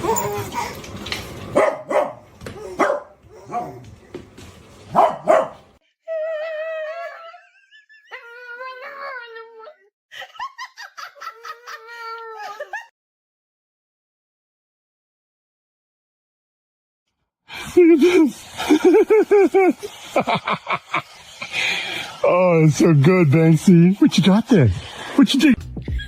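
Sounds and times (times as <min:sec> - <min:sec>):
dog whining and howling: 0:00.0 - 0:00.8, 0:06.1 - 0:09.8
dog barking: 0:01.6 - 0:03.8, 0:04.9 - 0:05.7
dog yipping: 0:01.6 - 0:03.8, 0:04.9 - 0:05.6.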